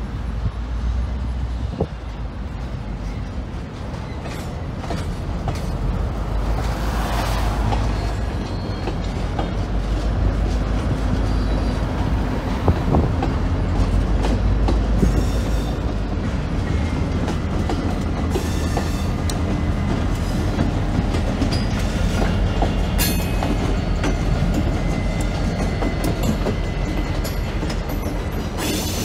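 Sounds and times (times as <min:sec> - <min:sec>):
diesel locomotive: 0:00.0 - 0:29.0
train wheels clicking over rail joints: 0:01.8 - 0:29.0.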